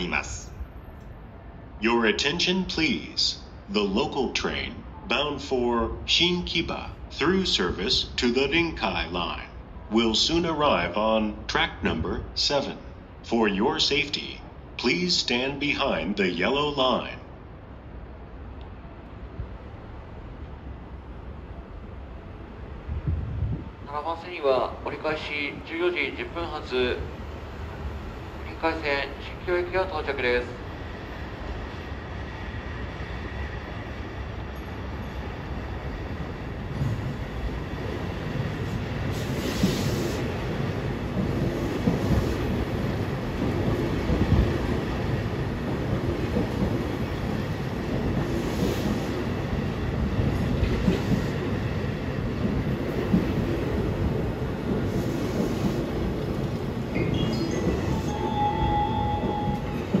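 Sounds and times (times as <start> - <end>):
train wheels rumbling: 18.7 - 60.0.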